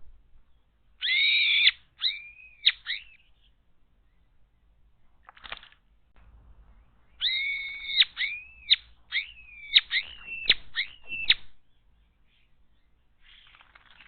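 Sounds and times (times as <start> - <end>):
bird whistling calls: 1.0 - 3.6, 6.8 - 13.6.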